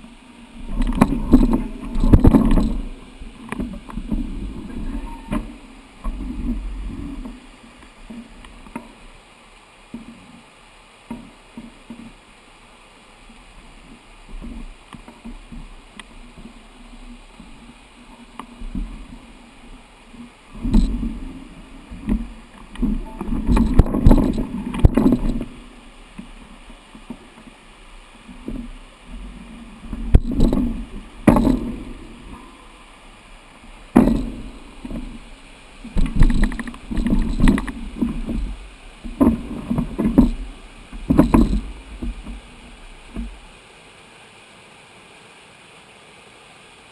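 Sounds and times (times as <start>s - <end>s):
wind buffeting microphone: 0.5s - 7.4s, 20.5s - 25.8s, 29.2s - 32.6s, 33.8s - 43.4s
sharp knocks: 30.1s - 32.0s, 33.9s - 35.2s, 39.1s - 42.4s.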